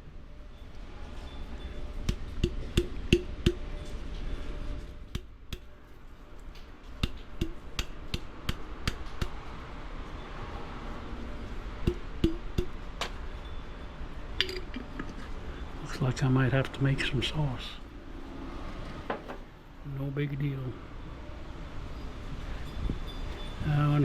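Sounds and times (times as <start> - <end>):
utensils knocking against cookware: 11.9 - 12.8.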